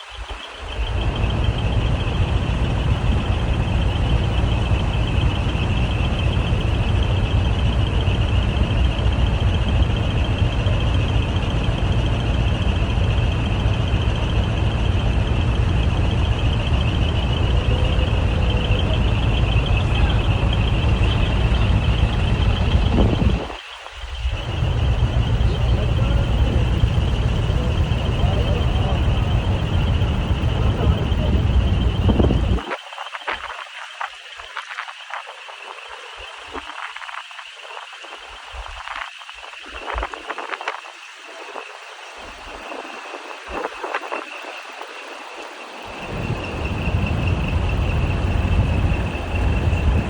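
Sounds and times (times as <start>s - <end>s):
diesel truck engines rumbling: 0.1s - 32.7s, 45.7s - 50.0s.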